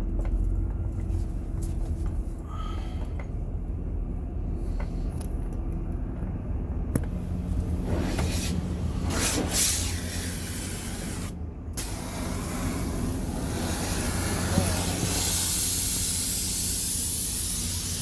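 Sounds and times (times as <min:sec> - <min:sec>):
van engine idling: 0:00.0 - 0:18.0
steady hum: 0:00.9 - 0:18.0
loud rushing hiss: 0:07.8 - 0:18.0.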